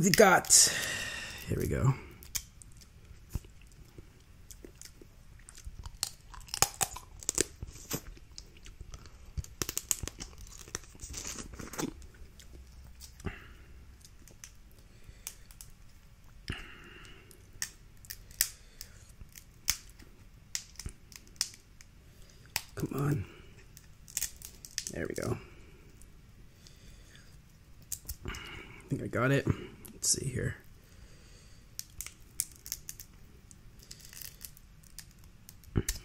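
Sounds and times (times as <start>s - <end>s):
crab shells cracking: 2.1s - 16.0s, 17.0s - 22.8s, 23.6s - 25.0s, 27.8s - 28.2s, 31.7s - 36.0s.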